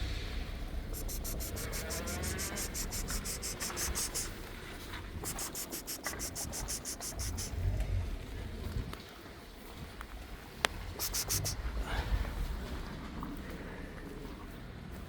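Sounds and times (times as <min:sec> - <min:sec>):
low rumble: 0:00.0 - 0:01.0
insects chirping: 0:00.9 - 0:04.4, 0:05.2 - 0:07.6, 0:11.0 - 0:11.6.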